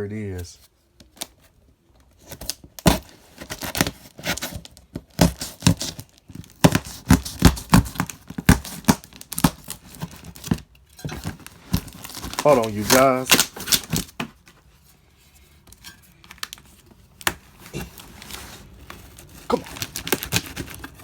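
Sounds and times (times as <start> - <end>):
cardboard box tearing: 2.2 - 10.6, 11.3 - 14.1, 17.6 - 21.0
rustling and knocks: 9.9 - 15.0.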